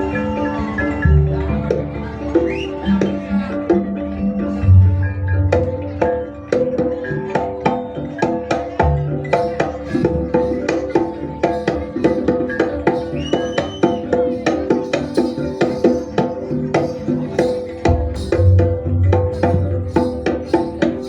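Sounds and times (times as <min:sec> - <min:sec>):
hand drum beating: 0:00.0 - 0:21.0.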